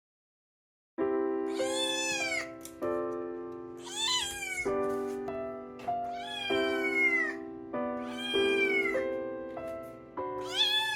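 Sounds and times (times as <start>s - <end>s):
background music with held notes: 1.0s - 10.9s
cat meowing: 1.5s - 2.6s, 3.8s - 4.8s, 6.0s - 7.4s, 8.0s - 9.1s, 10.4s - 10.9s.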